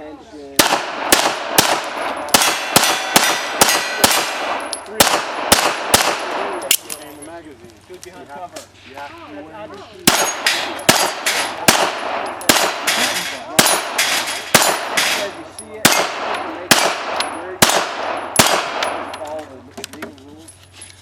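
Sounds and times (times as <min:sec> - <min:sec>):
pistol shots with echo: 0:00.6 - 0:06.9, 0:10.0 - 0:19.2.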